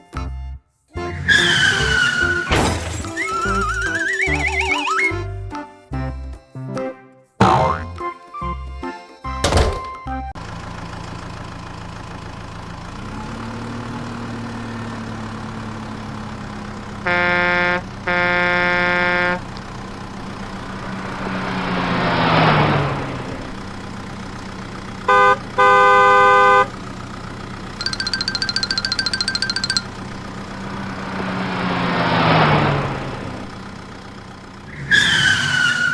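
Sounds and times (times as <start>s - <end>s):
vehicle engine running: 10.4s - 35.0s
vehicle horn honking: 17.0s - 19.5s, 25.1s - 26.8s
rapid pulsing ring: 27.8s - 29.9s.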